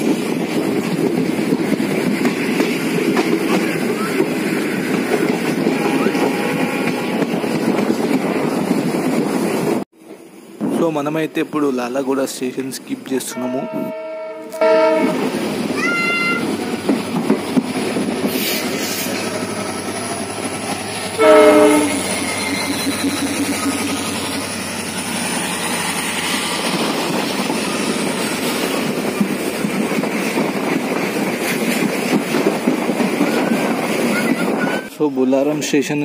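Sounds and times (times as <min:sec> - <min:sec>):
train wheels rumbling and clattering: 0:00.0 - 0:13.1, 0:14.5 - 0:36.0
locomotive horn blast: 0:05.6 - 0:07.2, 0:13.3 - 0:15.2, 0:21.2 - 0:22.1.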